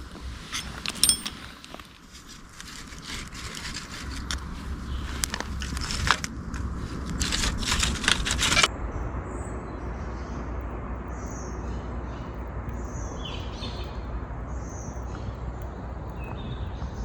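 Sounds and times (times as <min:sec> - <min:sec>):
low background rumble: 0:00.0 - 0:17.0
small birds chirping: 0:00.0 - 0:17.0.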